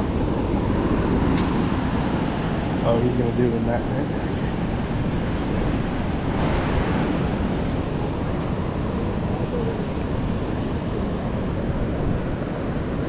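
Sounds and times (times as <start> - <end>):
river rushing: 0.0 - 13.0
wind buffeting microphone: 0.0 - 13.0.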